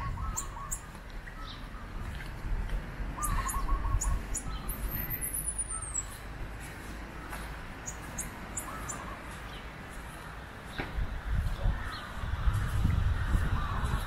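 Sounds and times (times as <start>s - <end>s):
steady low rumble: 0.0s - 14.0s
short high bird chirps: 3.2s - 6.2s.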